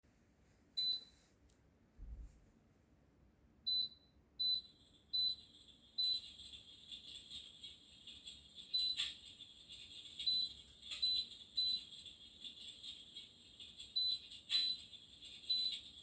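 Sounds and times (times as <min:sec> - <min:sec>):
fireplace flame hiss and crackle: 0:04.7 - 0:16.0.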